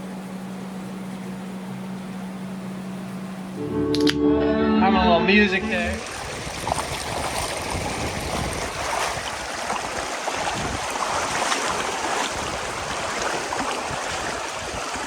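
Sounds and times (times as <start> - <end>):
river water flowing: 5.9 - 15.0.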